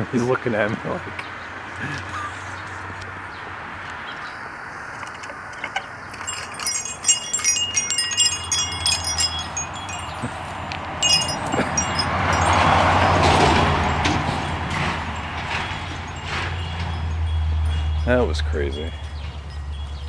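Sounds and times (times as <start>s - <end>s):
metal wind chimes ringing: 6.0s - 20.0s.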